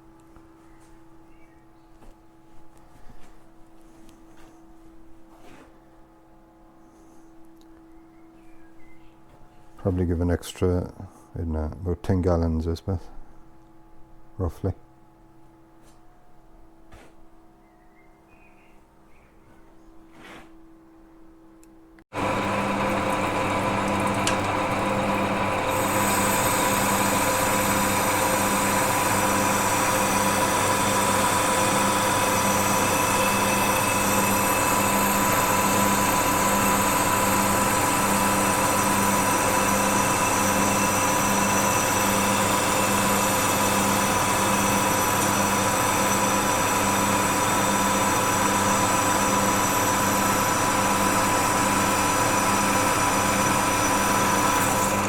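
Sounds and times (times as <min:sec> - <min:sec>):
workshop machine motor humming: 0:22.1 - 0:55.0.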